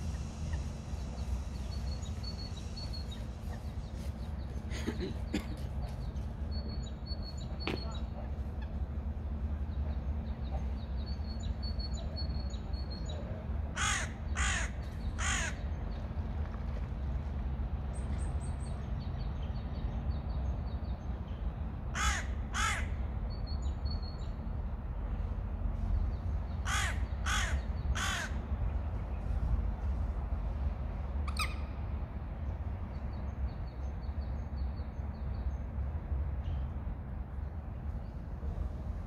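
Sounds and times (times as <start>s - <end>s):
steady low rumble: 0.0s - 39.0s
large bird calling loudly: 13.8s - 15.7s, 26.6s - 28.4s.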